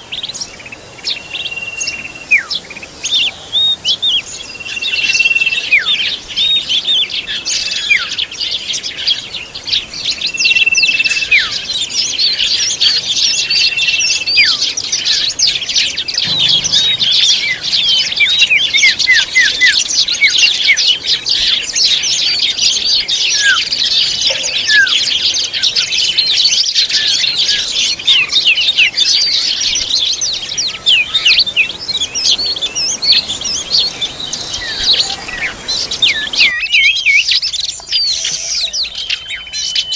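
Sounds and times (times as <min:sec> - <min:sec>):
bird chirps and whistles: 0:16.2 - 0:21.0, 0:36.0 - 0:39.9.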